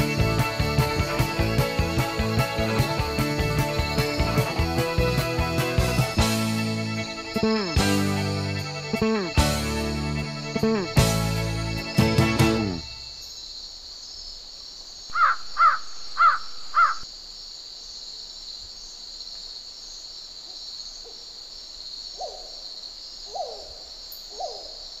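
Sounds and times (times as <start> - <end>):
fainter lower bird calls: 15.1 - 17.0
bird cawing: 15.1 - 17.1.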